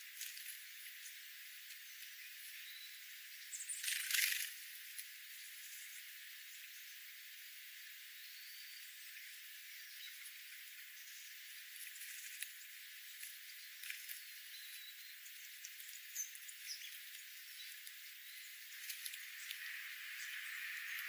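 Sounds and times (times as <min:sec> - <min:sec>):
birds chirping: 0:00.7 - 0:04.5, 0:08.2 - 0:21.0.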